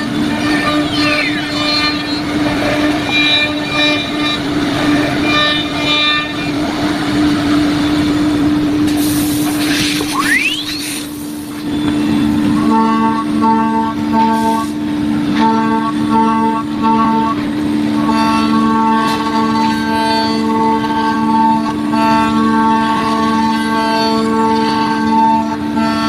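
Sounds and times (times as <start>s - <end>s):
router spindle whining: 0.0s - 9.0s
hiss of wood cutting: 8.9s - 11.6s.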